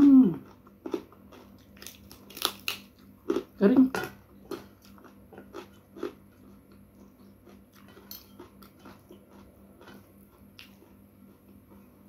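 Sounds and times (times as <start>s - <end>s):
chewing crisp food: 0.0s - 12.0s.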